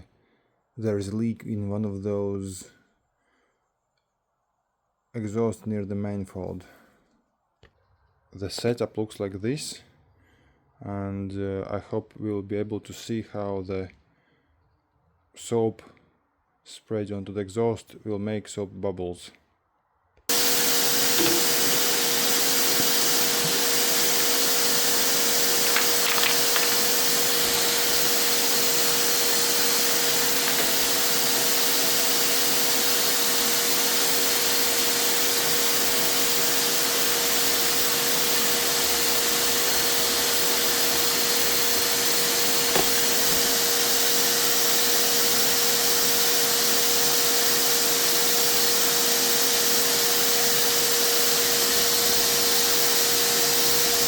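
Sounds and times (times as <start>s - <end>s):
vacuum cleaner blowing air: 20.3s - 54.0s.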